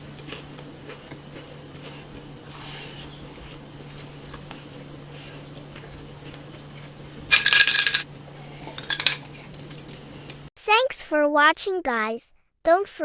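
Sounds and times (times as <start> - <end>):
faint steady hum: 0.0 - 10.5
metal utensil clinking on dish: 7.3 - 8.1, 8.7 - 10.5.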